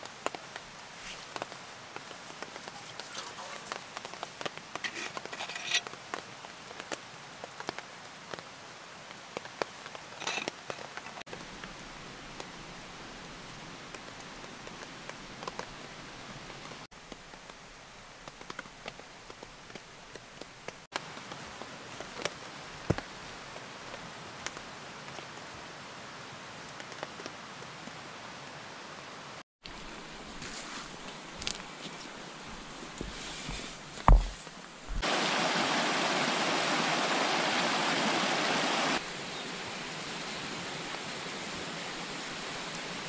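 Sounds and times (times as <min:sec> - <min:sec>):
steady rain falling: 0:00.0 - 0:43.0
raindrops tapping close by: 0:01.3 - 0:12.7.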